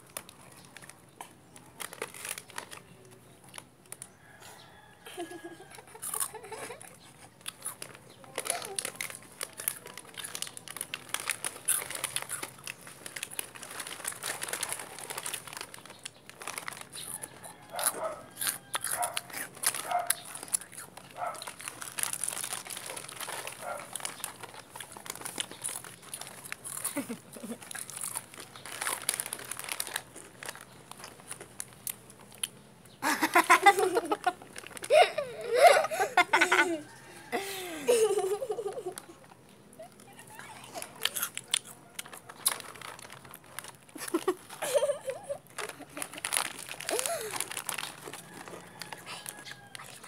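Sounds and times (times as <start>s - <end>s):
crunchy chewing: 0.0s - 37.4s, 38.0s - 50.0s
crinkling crackles: 0.0s - 50.0s
voices and laughter: 33.0s - 39.2s, 44.0s - 46.3s.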